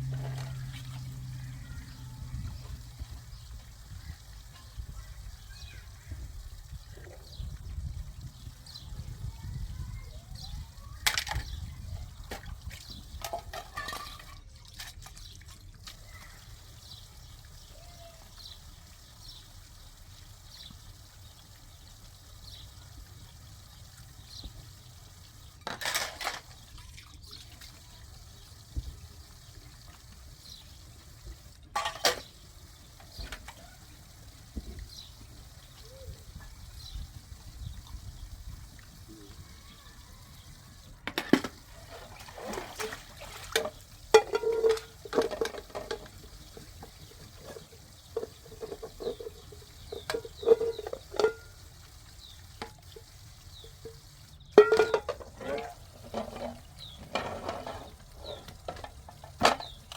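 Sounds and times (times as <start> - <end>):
water dripping: 0.0 - 59.9.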